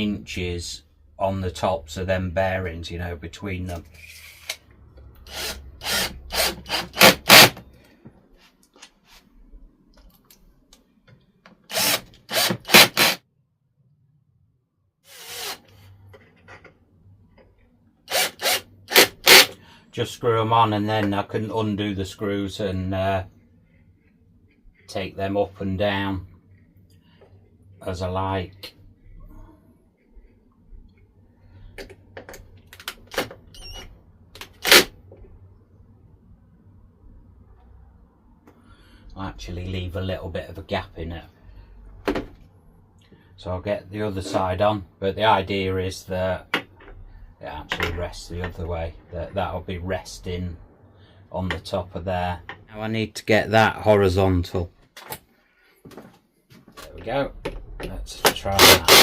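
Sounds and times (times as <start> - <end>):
power drill driving screws into wood: 5.3 - 7.6, 11.7 - 13.2, 15.1 - 15.7, 18.1 - 19.6, 34.5 - 34.9, 58.6 - 59.0.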